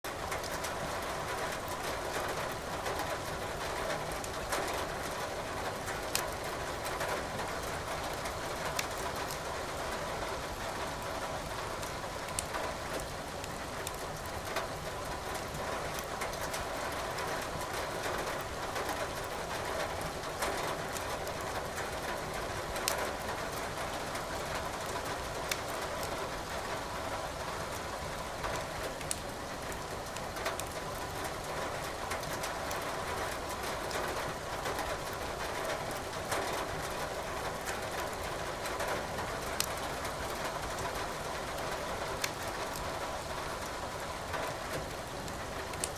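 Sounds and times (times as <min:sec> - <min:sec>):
rain rushing: 0:00.1 - 0:45.9
firewood crackling and popping: 0:05.9 - 0:06.4, 0:08.2 - 0:09.4, 0:11.8 - 0:14.5, 0:24.8 - 0:26.1, 0:28.6 - 0:31.5, 0:39.5 - 0:42.8, 0:44.8 - 0:45.9.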